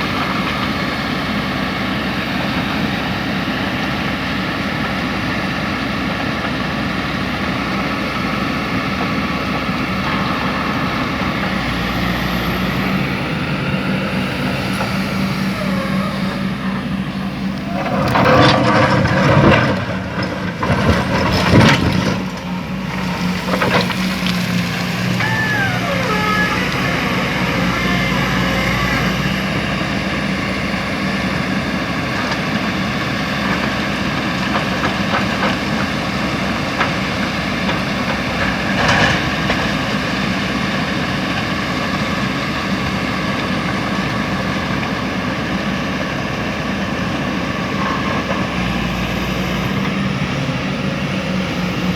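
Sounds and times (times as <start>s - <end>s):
diesel engines of heavy equipment: 0.0s - 51.9s
short falling squeal: 12.9s - 18.4s, 22.5s - 29.8s.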